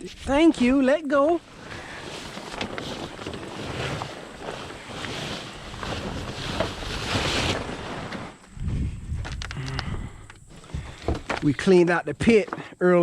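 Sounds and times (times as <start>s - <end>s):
plastic cover rustling: 0.0s - 8.6s.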